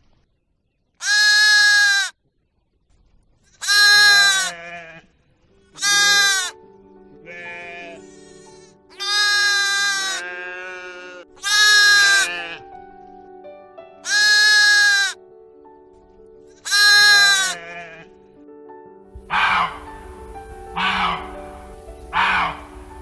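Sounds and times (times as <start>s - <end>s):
farm animal bleating: 1.0s - 2.2s, 3.5s - 6.6s, 7.2s - 12.7s, 14.0s - 15.2s, 16.5s - 18.2s, 19.3s - 20.0s, 20.8s - 23.0s
soft background music: 3.7s - 23.0s.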